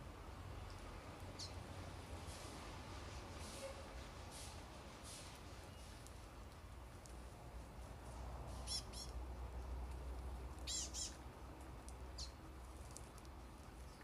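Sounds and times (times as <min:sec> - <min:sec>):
bird giving short high chirps: 0:10.7 - 0:11.2.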